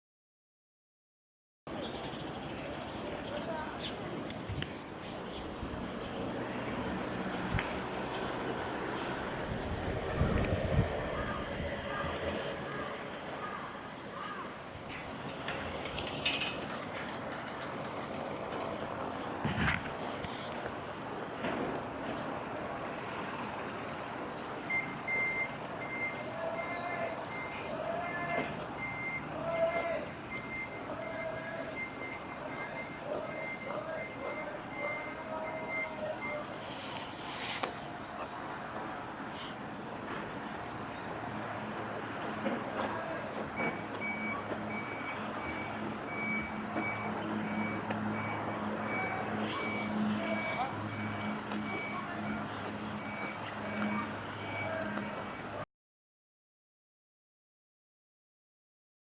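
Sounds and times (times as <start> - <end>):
small birds chirping: 1.7 - 10.0, 11.1 - 55.6
low engine hum: 1.8 - 55.6
high beeps: 24.0 - 37.2, 43.5 - 55.6.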